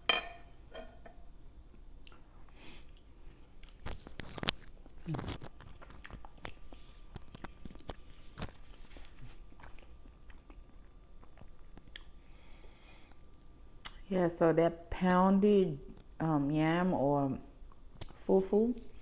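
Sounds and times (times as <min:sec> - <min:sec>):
person chewing and biting: 0:02.9 - 0:12.2.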